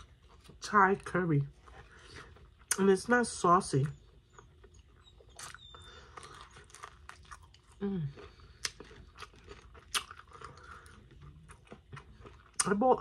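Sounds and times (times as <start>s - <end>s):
crunchy chewing: 3.8s - 12.8s.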